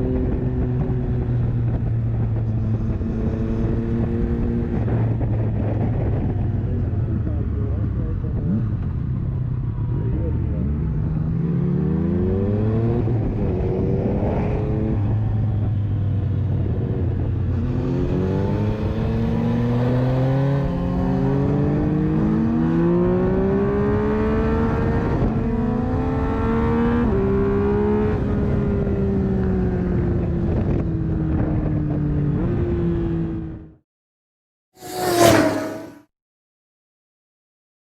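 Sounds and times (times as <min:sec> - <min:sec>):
wind noise: 0:00.0 - 0:33.6
motorcycle engine: 0:34.8 - 0:36.1.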